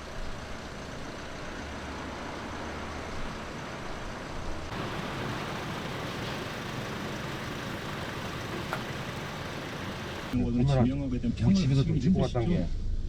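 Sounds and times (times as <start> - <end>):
vehicle road and engine noise: 0.0 - 10.4.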